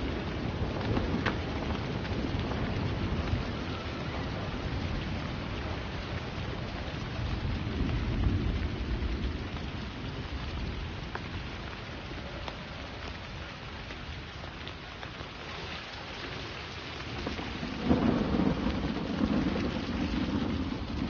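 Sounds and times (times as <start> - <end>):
low rumble of thunder: 0.0 - 13.5, 16.4 - 21.0
steady rain falling: 0.0 - 21.0.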